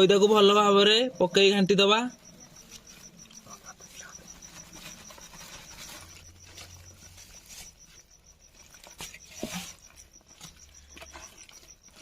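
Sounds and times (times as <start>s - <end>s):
cricket chirping: 0.0s - 12.0s
rustle: 2.7s - 12.0s.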